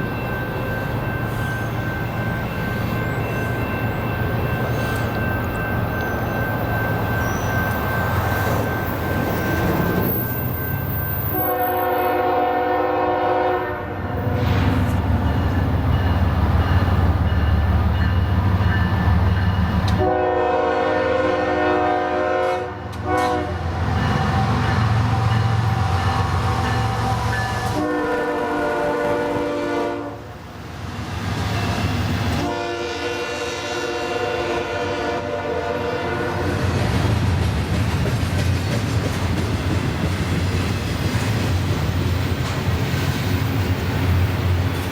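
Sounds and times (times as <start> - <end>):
locomotive air horn blasts: 11.3 - 14.4, 19.9 - 23.6, 26.4 - 30.3, 32.4 - 36.4.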